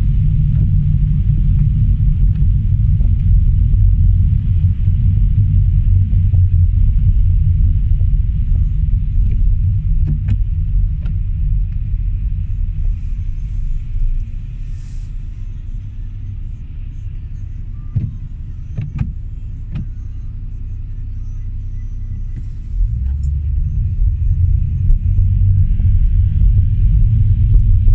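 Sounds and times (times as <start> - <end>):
car engine and tyre noise: 0.0 - 27.9.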